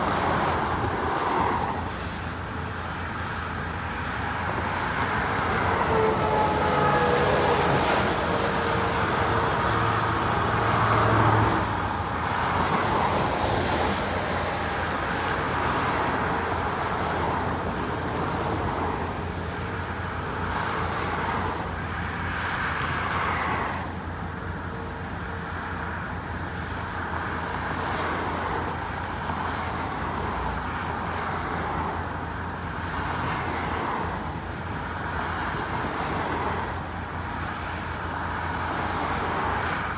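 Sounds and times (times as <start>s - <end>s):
faint vehicle whine: 0.0s - 39.9s
cars driving past: 4.0s - 19.4s.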